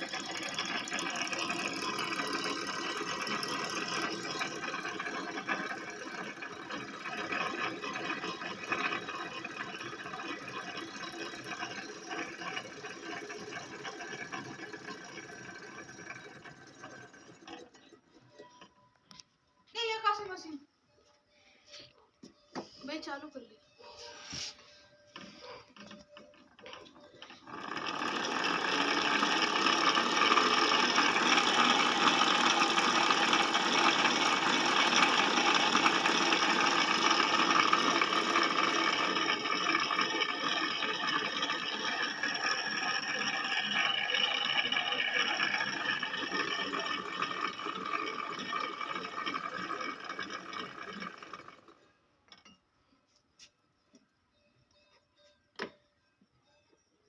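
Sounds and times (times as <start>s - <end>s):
ceiling fan motor running: 0.0s - 17.9s, 26.0s - 51.8s.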